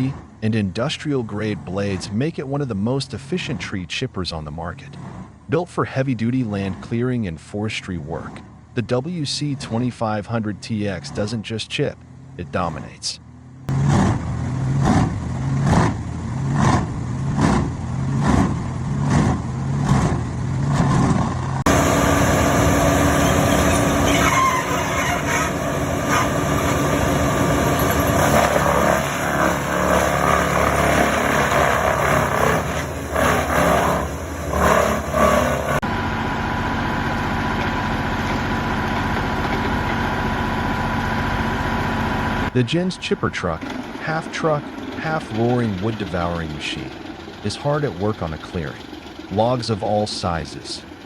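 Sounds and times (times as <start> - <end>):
engine running: 0.0 - 51.0
wood chipper grinding wood: 20.6 - 42.6.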